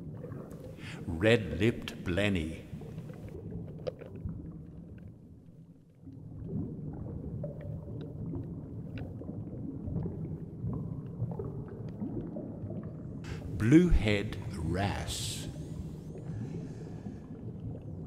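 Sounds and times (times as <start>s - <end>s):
faint underwater clicks and crackles: 0.0s - 1.1s, 1.8s - 13.6s, 15.5s - 18.0s
muffled underwater rumble: 15.2s - 18.0s.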